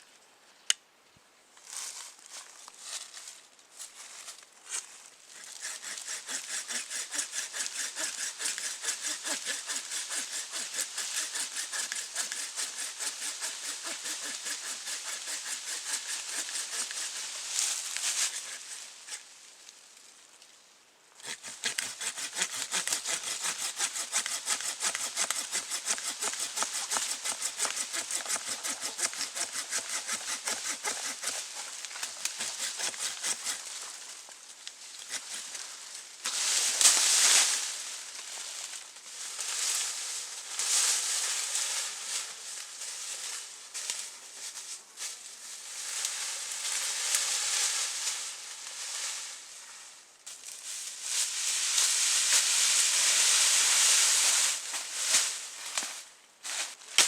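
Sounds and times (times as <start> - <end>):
hand saw cutting wood: 5.4 - 19.2, 21.2 - 34.0, 35.0 - 35.6.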